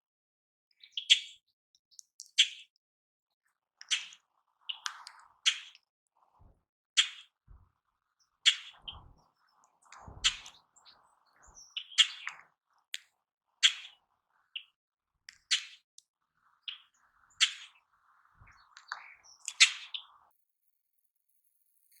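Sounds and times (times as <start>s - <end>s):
faint low thuds: 8.8s - 9.3s, 9.9s - 10.6s.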